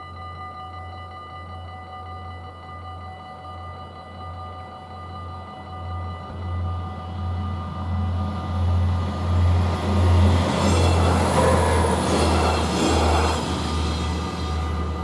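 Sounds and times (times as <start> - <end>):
crossing warning bells ringing: 0.0 - 15.0
train engine rumbling: 5.4 - 15.0
train wheels clattering on rails: 7.6 - 15.0.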